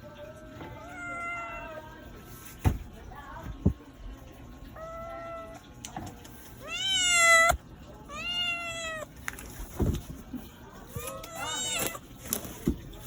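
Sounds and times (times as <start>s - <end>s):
cat meowing: 0.8s - 1.9s, 4.8s - 5.7s, 6.6s - 9.2s, 11.0s - 12.1s.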